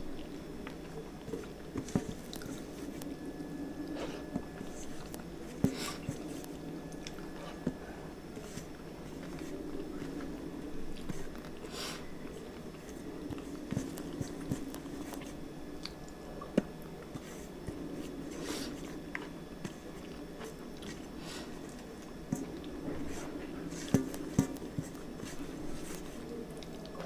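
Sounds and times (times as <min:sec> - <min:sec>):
person chewing food: 0:00.1 - 0:03.1, 0:03.8 - 0:27.0.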